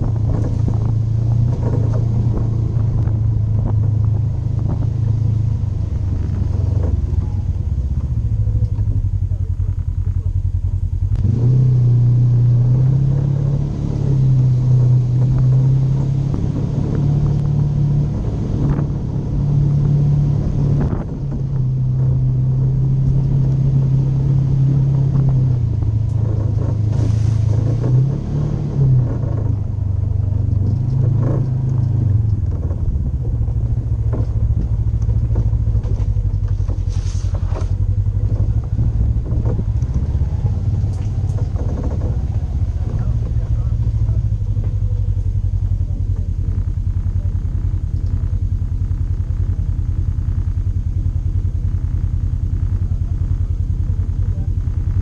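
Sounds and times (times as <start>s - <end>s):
off-road vehicle engine running: 0.0s - 55.0s
knocks from rough ground: 30.3s - 43.8s.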